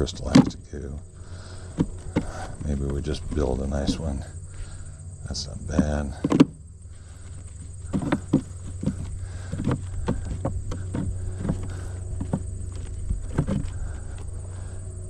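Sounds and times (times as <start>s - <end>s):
wooden frames knocking together: 0.0s - 14.8s
steady low hum: 0.0s - 15.0s.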